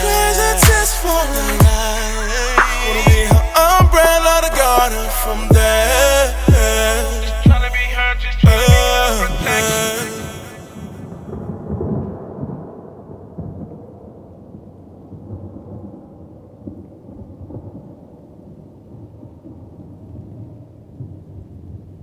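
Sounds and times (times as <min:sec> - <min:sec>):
song ending: 0:00.0 - 0:11.0
low rolling thunder: 0:11.3 - 0:20.3.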